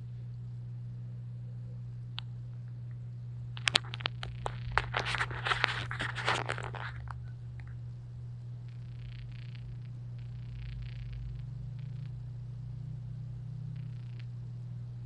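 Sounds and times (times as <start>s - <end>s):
low electrical hum: 0.0s - 15.0s
scratching and crackling on microphone: 2.2s - 7.9s, 8.6s - 12.3s, 13.7s - 14.6s.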